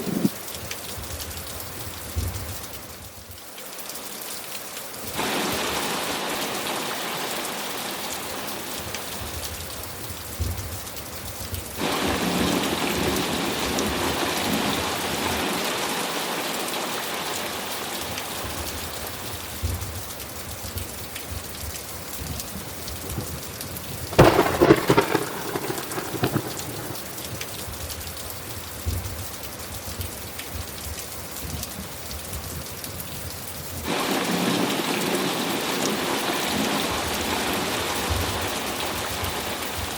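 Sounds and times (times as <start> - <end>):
heavy rain: 0.0 - 39.9
low thunder rumbles: 22.5 - 28.1
thunder clap: 23.0 - 27.9.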